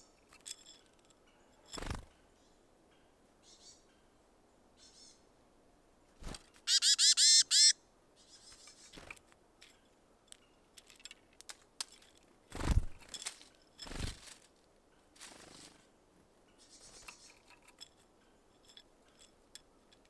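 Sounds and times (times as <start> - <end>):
songbird harsh call notes: 6.7 - 8.6.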